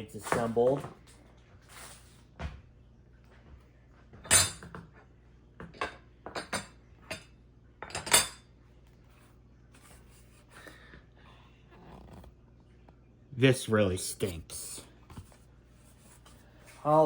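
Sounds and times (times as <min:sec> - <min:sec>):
fan parts knocking and clinking: 0:04.2 - 0:04.9.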